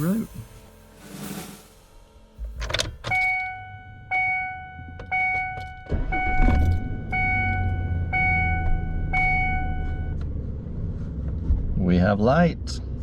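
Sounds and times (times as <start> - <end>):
dashboard warning chime: 2.7 - 10.2.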